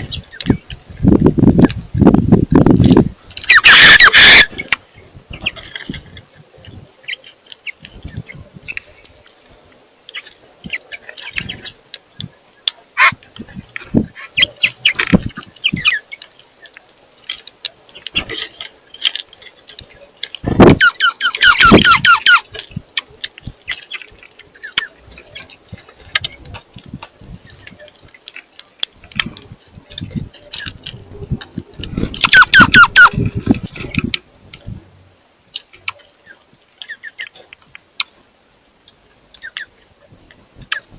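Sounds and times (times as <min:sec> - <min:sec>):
birds squawking rapidly: 0:03.4 - 0:05.8, 0:12.6 - 0:22.8, 0:31.9 - 0:33.7, 0:36.2 - 0:37.4, 0:39.1 - 0:39.9.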